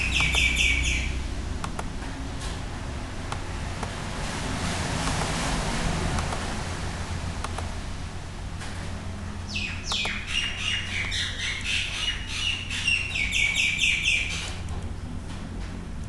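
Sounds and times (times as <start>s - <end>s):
bird shrill chirps: 0.0s - 1.1s, 9.5s - 14.5s.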